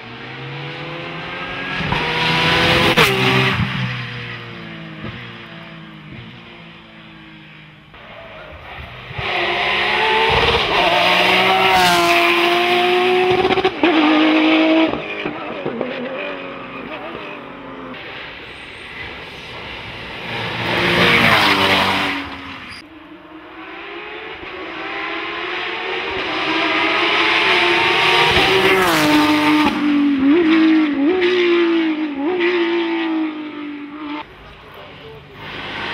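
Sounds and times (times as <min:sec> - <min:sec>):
race car passing by: 0:00.0 - 0:05.6, 0:08.0 - 0:35.9
race car engines revving: 0:00.0 - 0:35.9.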